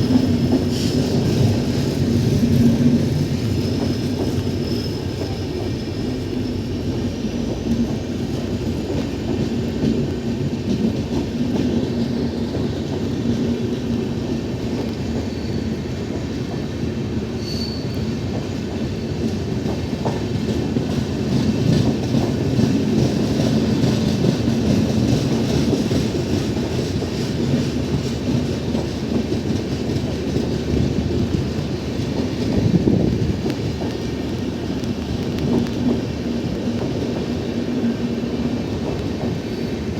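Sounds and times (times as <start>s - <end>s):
passenger train rumbling past: 0.0s - 39.9s
faint high wheel squeal: 3.5s - 6.7s, 15.2s - 16.1s, 17.3s - 18.3s.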